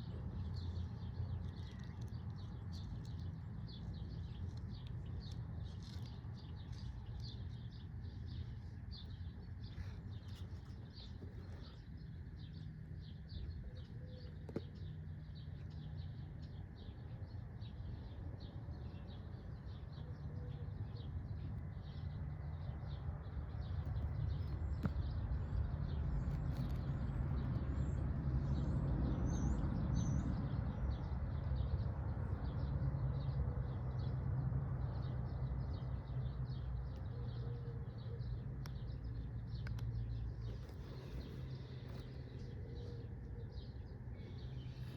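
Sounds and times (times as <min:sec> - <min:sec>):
birds chirping: 0:35.7 - 0:44.9.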